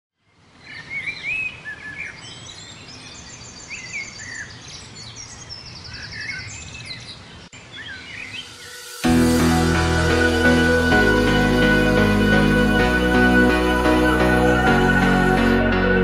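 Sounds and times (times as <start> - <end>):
birds chirping and trilling: 0.2 - 9.5.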